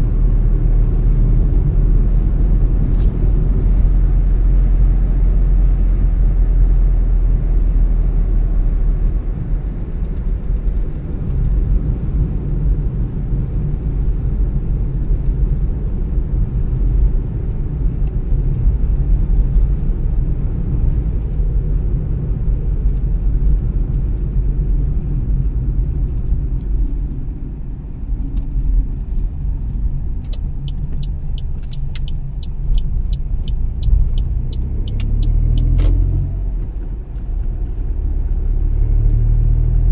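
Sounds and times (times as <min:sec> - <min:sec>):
car engine and tyre rumble: 0:00.0 - 0:39.9
regular ticking: 0:30.0 - 0:35.9.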